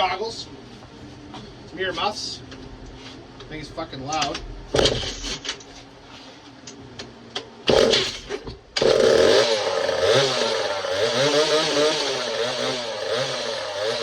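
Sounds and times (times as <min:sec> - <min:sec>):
chainsaw engine running: 0:07.7 - 0:14.0.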